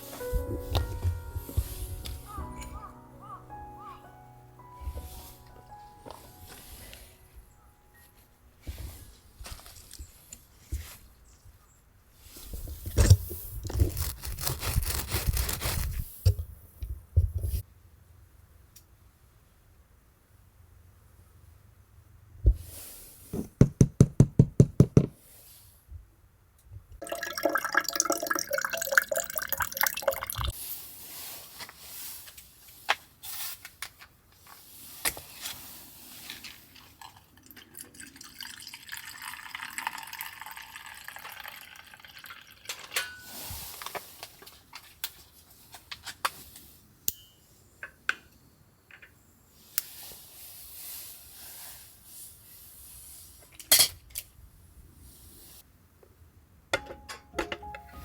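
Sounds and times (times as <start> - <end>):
rustling of things handled: 0.0 - 2.9, 4.7 - 11.6, 12.2 - 17.6, 30.5 - 37.4, 42.7 - 47.0
liquid being poured: 27.0 - 30.5, 36.8 - 42.8.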